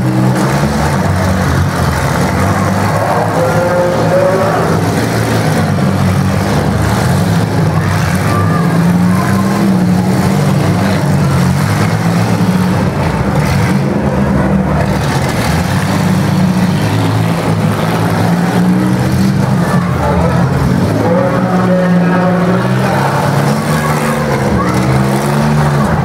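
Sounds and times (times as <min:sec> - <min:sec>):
car engines rumbling: 0:00.0 - 0:26.0.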